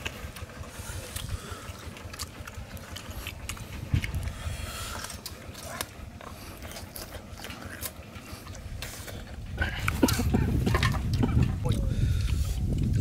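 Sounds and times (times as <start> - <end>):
lip-smacking: 0.0 - 13.0
low rumble: 0.0 - 13.0
wet chewing: 0.0 - 13.0
small clicks and crunches: 4.9 - 8.9.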